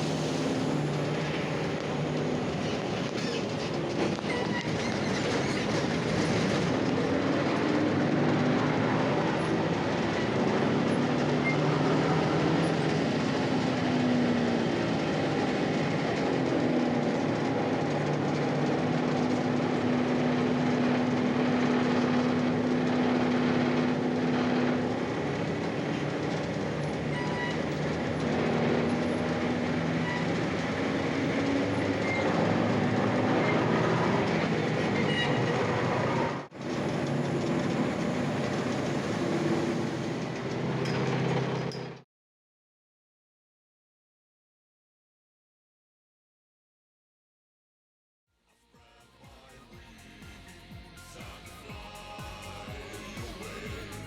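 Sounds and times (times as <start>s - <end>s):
bus body rumble and rattle: 0.0s - 42.0s
bus diesel engine: 0.0s - 42.0s, 49.0s - 54.0s.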